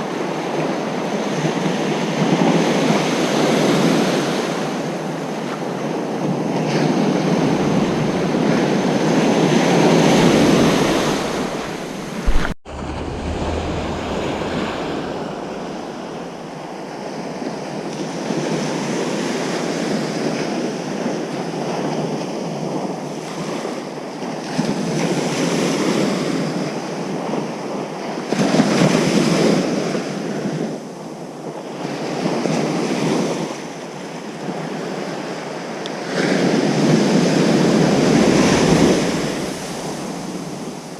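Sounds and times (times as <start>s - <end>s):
ocean surf breaking: 4.2s - 18.4s, 36.5s - 40.9s
wind on microphone: 5.7s - 18.1s, 36.9s - 40.9s
sharp pop: 10.6s - 16.5s.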